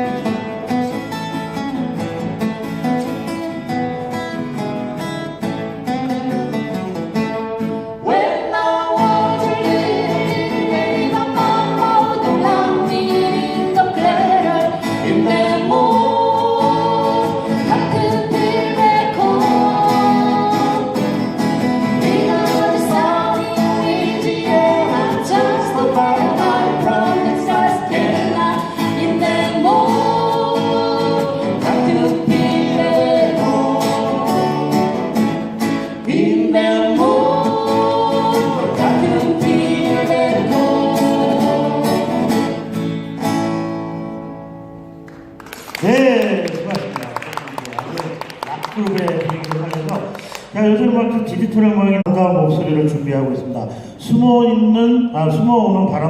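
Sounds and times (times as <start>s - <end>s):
strummed acoustic guitars: 0.0s - 50.6s
voices singing together: 8.0s - 42.9s.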